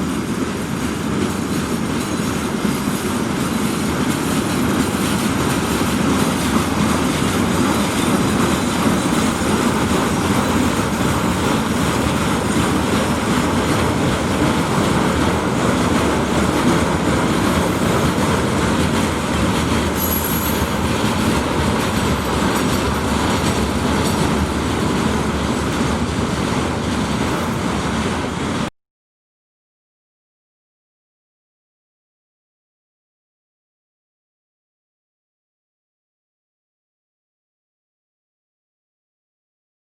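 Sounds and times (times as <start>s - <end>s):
freight train wheels rumbling: 0.0s - 28.7s.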